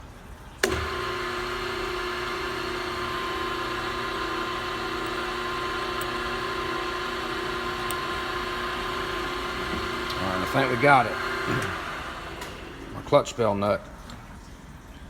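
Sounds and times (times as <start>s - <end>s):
power drill click: 0.6s - 1.2s, 2.8s - 12.8s
power drill motor hum: 0.6s - 13.1s.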